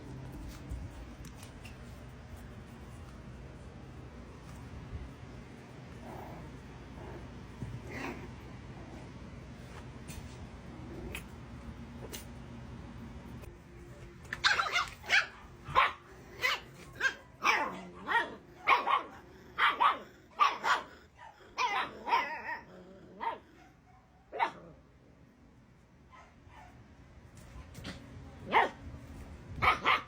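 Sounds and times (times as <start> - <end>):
puppy barking and yipping: 14.4 - 20.9, 29.6 - 30.0.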